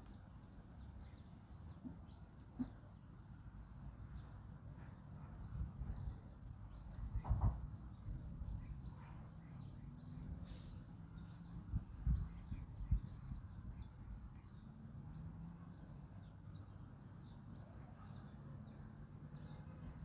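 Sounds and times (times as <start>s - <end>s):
small birds chirping: 0.0s - 20.0s
low wind rumble: 4.9s - 9.0s, 10.9s - 15.3s
low call or thump: 7.1s - 7.7s
brief hiss: 10.3s - 10.9s.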